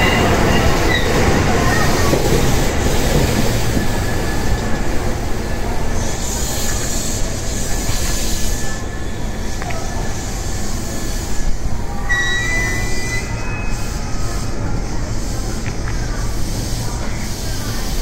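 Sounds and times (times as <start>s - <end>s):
high brake squeal: 0.0s - 2.0s, 6.2s - 15.0s
train wheels rumbling on rail: 0.0s - 18.0s.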